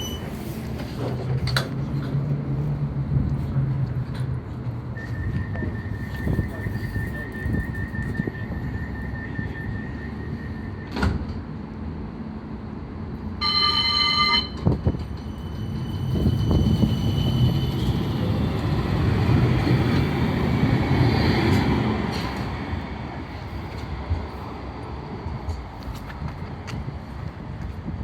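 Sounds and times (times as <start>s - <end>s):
tram running rumble: 0.0s - 28.0s
warning tone: 13.4s - 14.6s.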